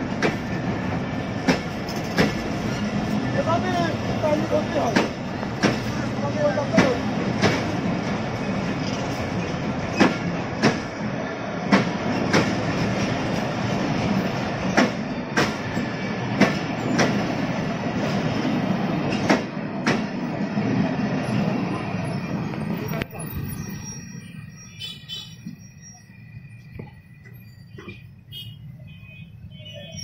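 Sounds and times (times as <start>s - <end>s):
wheels clacking over rail joints: 0.0s - 11.0s, 11.6s - 20.3s
train coaches rumbling past: 0.0s - 30.0s.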